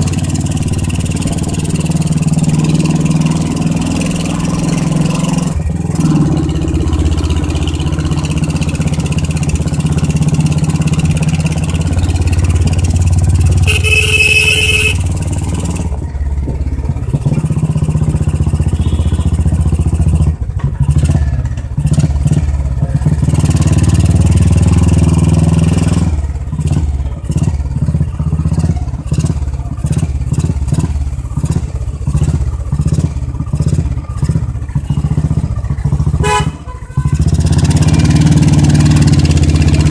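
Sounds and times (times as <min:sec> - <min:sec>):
motorcycle engine running: 0:00.0 - 0:39.9
motorcycle horn: 0:13.5 - 0:15.2, 0:18.6 - 0:19.5, 0:36.2 - 0:37.4.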